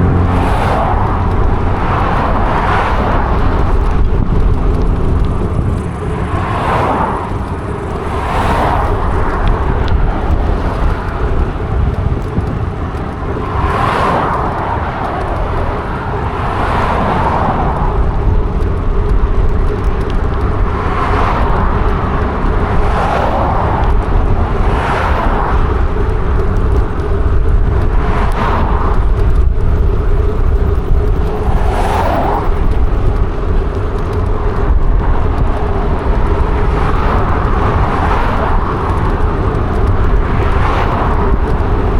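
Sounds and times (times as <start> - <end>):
whooshing swell: 0.0 - 3.5
bike tyre noise on path: 0.0 - 41.9
wind rumble on microphone: 0.0 - 41.9.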